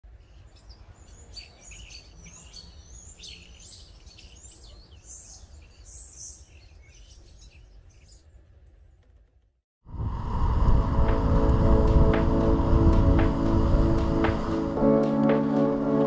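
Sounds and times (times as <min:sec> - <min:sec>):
birds chirping and calling: 0:00.2 - 0:08.3
low steady rumble: 0:09.9 - 0:14.8.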